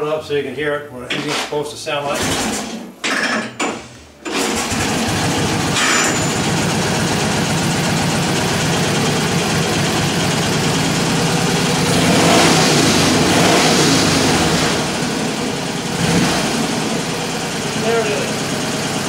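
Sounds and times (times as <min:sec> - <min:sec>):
motorcycle engine running: 0:04.3 - 0:19.0.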